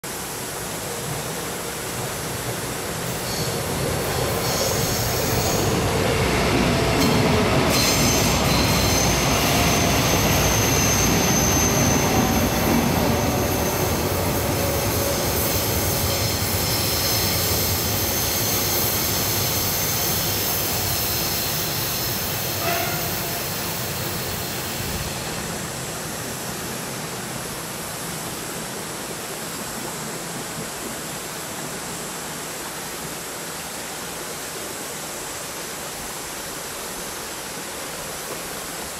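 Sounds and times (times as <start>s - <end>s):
train wheels rumbling on rail: 0.3s - 31.8s
high-pitched wheel squeal: 4.4s - 5.8s, 7.7s - 24.6s.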